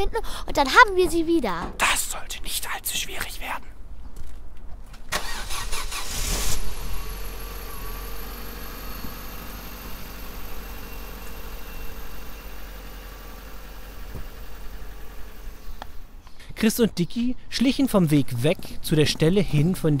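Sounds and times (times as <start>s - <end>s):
car engine running: 5.4s - 16.1s.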